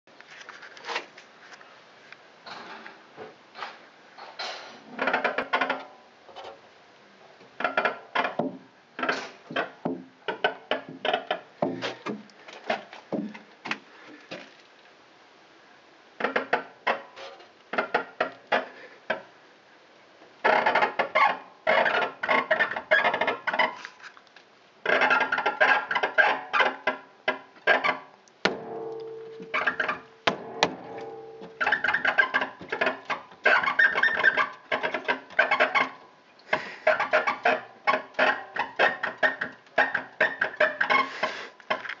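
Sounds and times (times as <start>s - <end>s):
fuel tank creaking: 26.7s - 41.9s.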